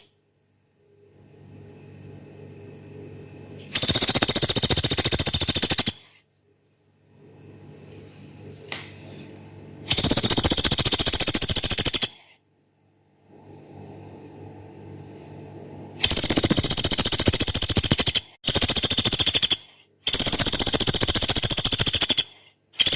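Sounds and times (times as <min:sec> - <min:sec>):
faint low hum: 0:00.0 - 0:22.9
woodpecker rattling calls: 0:03.8 - 0:06.1, 0:09.9 - 0:12.3, 0:16.0 - 0:22.9.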